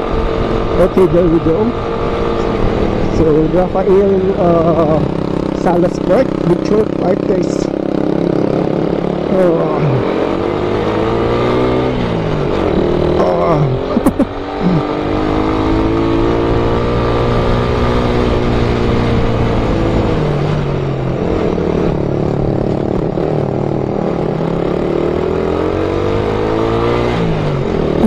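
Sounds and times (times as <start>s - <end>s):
motorcycle engine under load: 1.5s - 28.0s.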